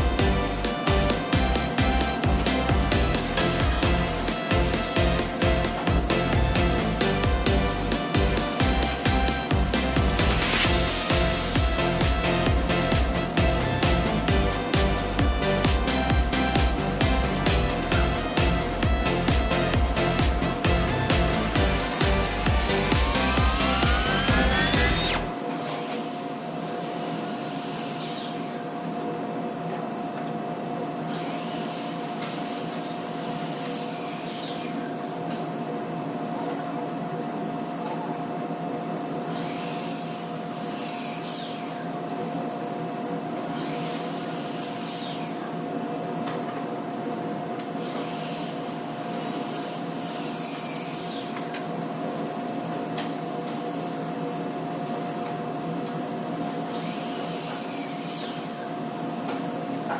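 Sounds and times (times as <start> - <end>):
high swishing sweep: 0.0 - 25.3
electric motor humming: 0.0 - 25.4.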